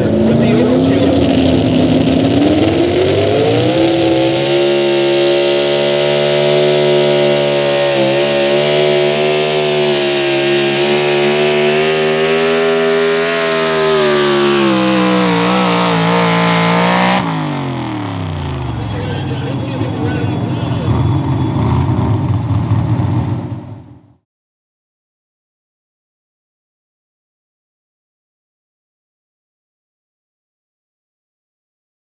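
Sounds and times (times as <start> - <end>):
truck engine at full throttle: 0.0 - 24.2.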